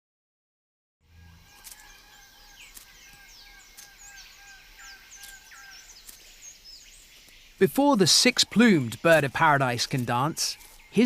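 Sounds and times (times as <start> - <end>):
sharp clicks: 2.7 - 3.0.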